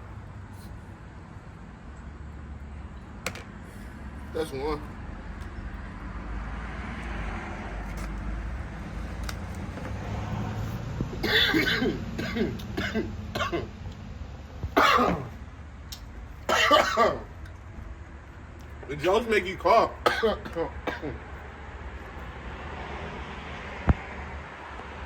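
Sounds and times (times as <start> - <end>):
man coughing: 11.2 - 13.7, 14.8 - 15.4, 16.5 - 17.3, 20.0 - 21.2.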